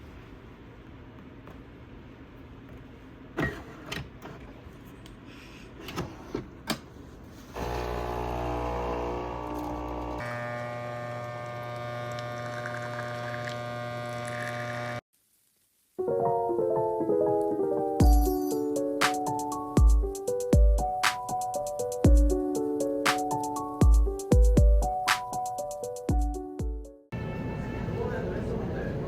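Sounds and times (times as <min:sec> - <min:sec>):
small electric motor humming: 0:07.6 - 0:15.0.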